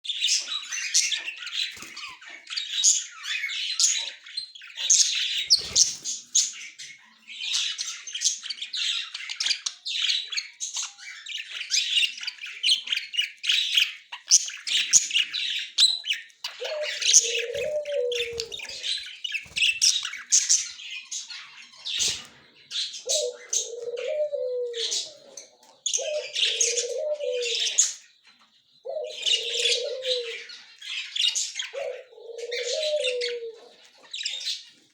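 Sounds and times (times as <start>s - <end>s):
budgerigars chattering: 0.1s - 34.8s
low deep bird call: 16.6s - 18.8s.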